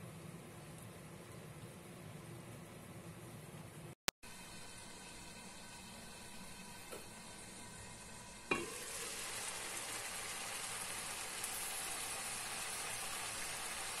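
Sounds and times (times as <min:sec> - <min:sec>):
meat sizzling in a wok: 0:04.3 - 0:14.0.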